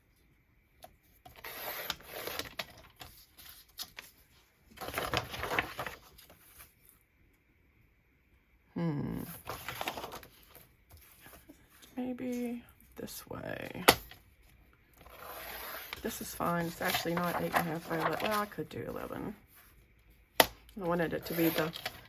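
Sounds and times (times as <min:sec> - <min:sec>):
paper handling: 0:04.8 - 0:06.9, 0:15.0 - 0:19.8, 0:20.9 - 0:22.0.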